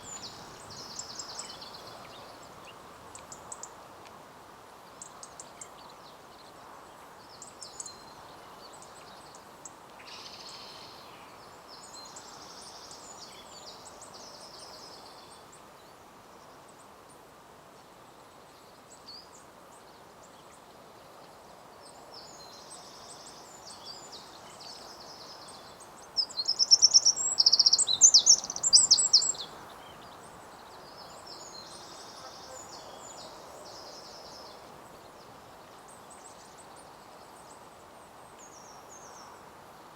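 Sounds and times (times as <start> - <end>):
small birds singing: 0.0 - 3.8, 22.2 - 37.6.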